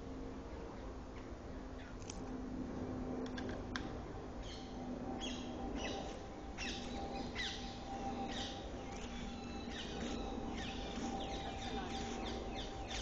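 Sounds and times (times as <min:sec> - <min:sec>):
faint low hum: 0:00.0 - 0:13.0
birds chirping: 0:04.4 - 0:13.0.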